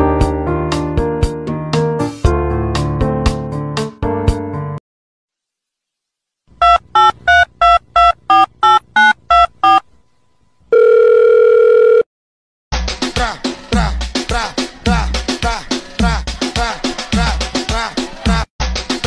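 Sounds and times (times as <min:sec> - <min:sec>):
music: 0:00.0 - 0:04.8, 0:12.7 - 0:19.0
steady dial tone: 0:06.6 - 0:09.8, 0:10.7 - 0:12.1
telephone keypad beeps: 0:06.6 - 0:09.8.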